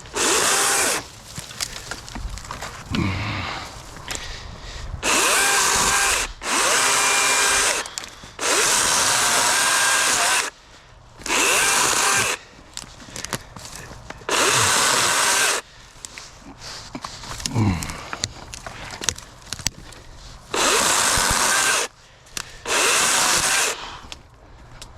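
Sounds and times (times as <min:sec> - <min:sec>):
chainsaw running in bursts: 0:00.0 - 0:01.8, 0:05.0 - 0:10.5, 0:11.3 - 0:12.4, 0:14.3 - 0:15.6, 0:20.5 - 0:21.9, 0:22.6 - 0:23.8.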